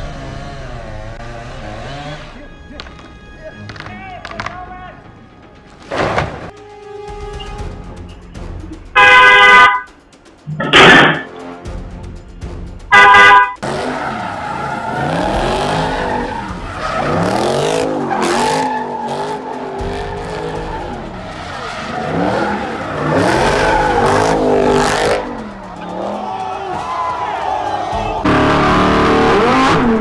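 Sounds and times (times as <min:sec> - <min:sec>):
car engine revving: 0:00.0 - 0:04.5, 0:07.7 - 0:30.0
tyres skidding and squealing: 0:00.0 - 0:06.5, 0:12.9 - 0:30.0.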